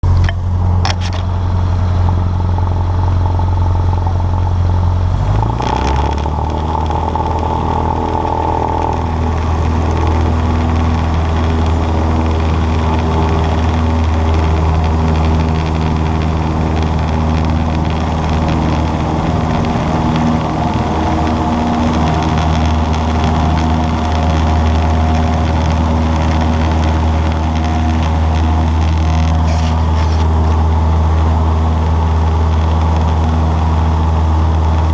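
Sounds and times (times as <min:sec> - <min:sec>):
light aircraft engine droning: 0:00.0 - 0:34.9.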